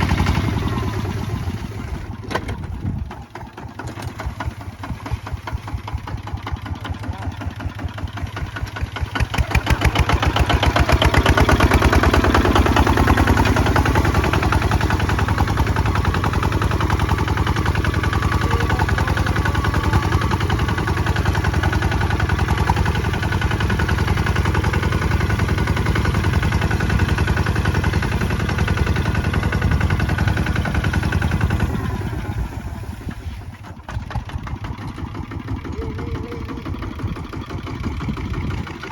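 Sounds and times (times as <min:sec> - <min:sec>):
diesel tractor engine chugging: 0:00.0 - 0:38.9.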